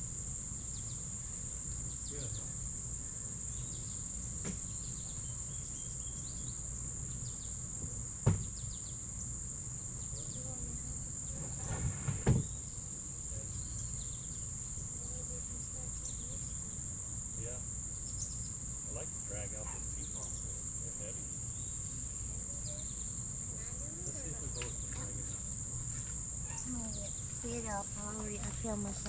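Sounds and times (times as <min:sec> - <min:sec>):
high-pitched insect chorus: 0:00.0 - 0:29.0
dull thump: 0:07.8 - 0:08.6, 0:11.5 - 0:12.5.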